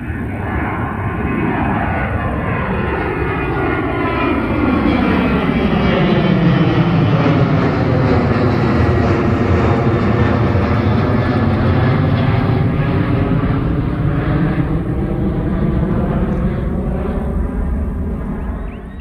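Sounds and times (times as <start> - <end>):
jet airliner engines whining: 0.0 - 19.0.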